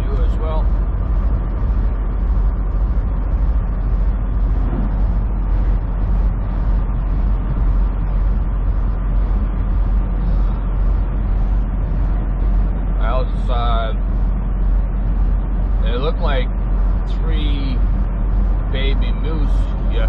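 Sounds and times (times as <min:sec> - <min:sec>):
truck engine and road rumble: 0:00.0 - 0:20.0.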